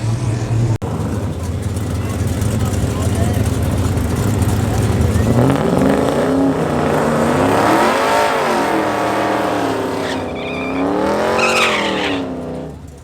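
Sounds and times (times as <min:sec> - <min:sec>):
truck engine revving: 0:00.0 - 0:13.0
high squeal: 0:09.2 - 0:12.4.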